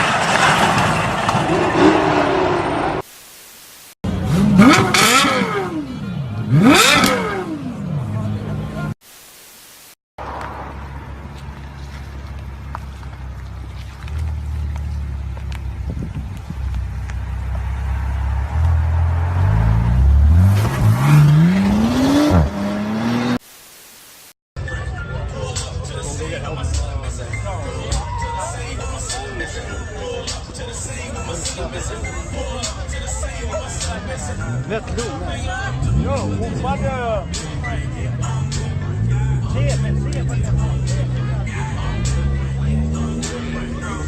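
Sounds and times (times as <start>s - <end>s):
car engine revving: 4.1s - 9.0s, 10.3s - 23.4s, 35.6s - 44.0s.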